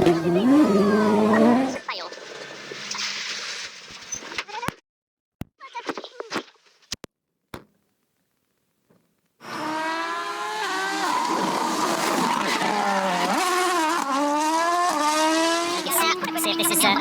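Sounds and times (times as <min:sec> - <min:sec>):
car engine starting and revving: 0:00.0 - 0:01.9, 0:09.4 - 0:17.0
tyre and road noise: 0:00.0 - 0:04.4, 0:09.4 - 0:17.0.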